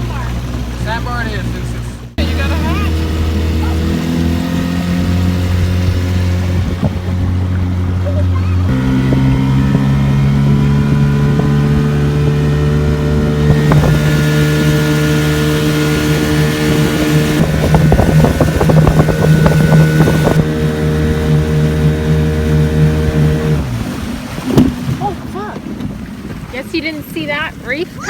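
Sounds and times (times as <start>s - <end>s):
outboard motor running: 0.0s - 28.0s
water splashing against hull: 0.0s - 28.0s.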